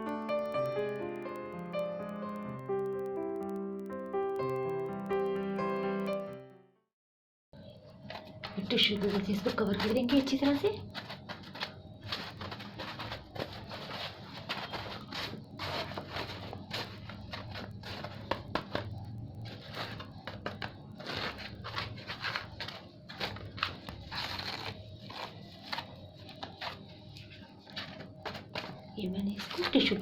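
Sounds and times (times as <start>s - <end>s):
tissue paper crinkling: 8.0s - 30.0s.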